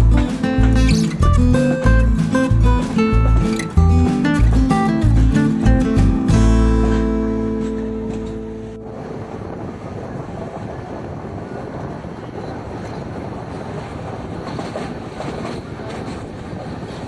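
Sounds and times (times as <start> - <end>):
passenger train running: 8.4 - 17.0.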